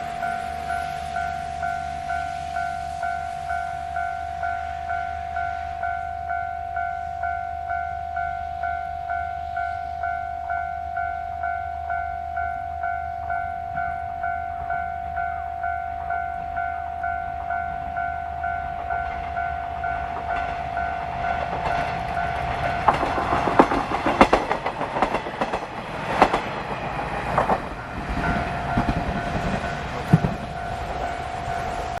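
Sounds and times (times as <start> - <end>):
level-crossing warning bell ringing: 0.0 - 25.7, 26.6 - 32.0
diesel train rumble: 0.0 - 32.0
train wheels clacking over rail joints: 18.9 - 32.0.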